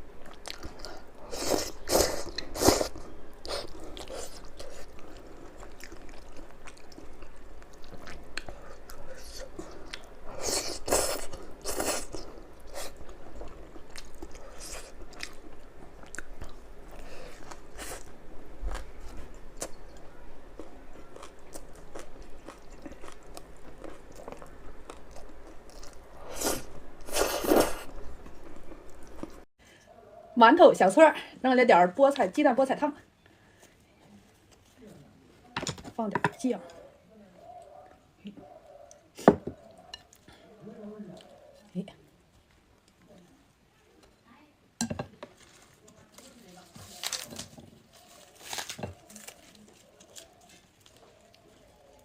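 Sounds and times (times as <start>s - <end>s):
chewing crispy food: 0.2s - 29.5s, 45.3s - 52.0s.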